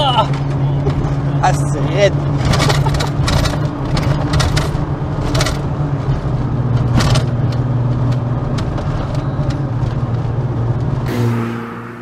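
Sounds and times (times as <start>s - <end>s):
car engine running inside cabin: 0.0s - 12.0s.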